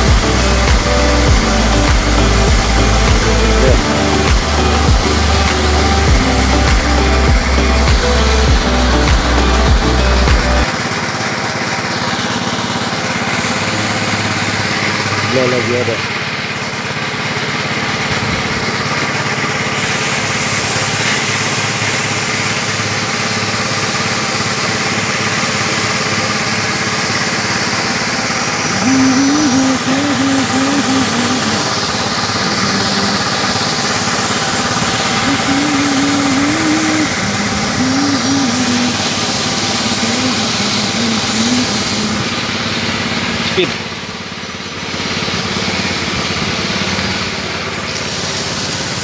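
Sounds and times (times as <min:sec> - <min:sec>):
wavering higher tone: 0:00.0 - 0:10.7, 0:28.7 - 0:42.8
small engine running: 0:00.0 - 0:49.0.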